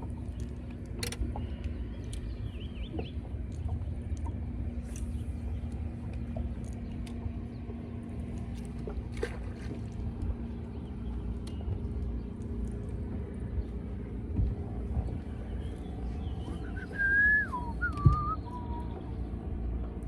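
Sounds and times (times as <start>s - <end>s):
boat motor humming: 0.0s - 20.0s
small clicks and knocks: 0.3s - 2.3s.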